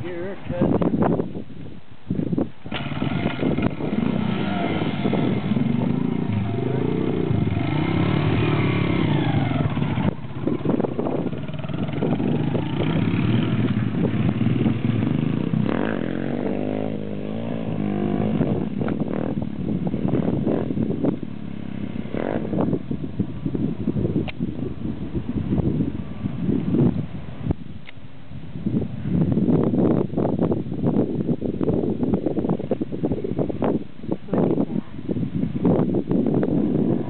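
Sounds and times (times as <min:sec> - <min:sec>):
dirt bike engine revving: 0:02.7 - 0:22.8.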